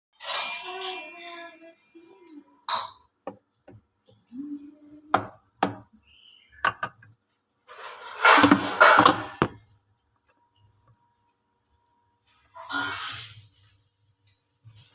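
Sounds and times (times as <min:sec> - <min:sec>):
hard objects knocking and clicking: 0:03.2 - 0:04.2, 0:05.1 - 0:05.9, 0:06.6 - 0:07.2, 0:08.2 - 0:09.7.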